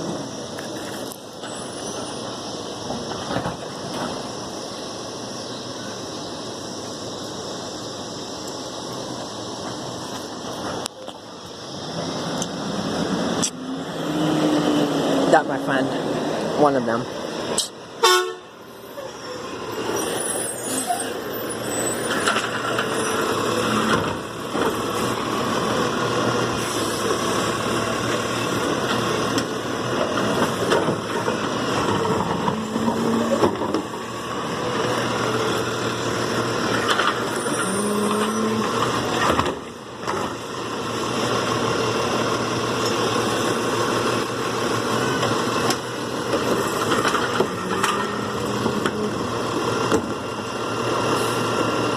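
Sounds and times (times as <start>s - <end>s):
garbage truck engine running: 18.6s - 51.9s.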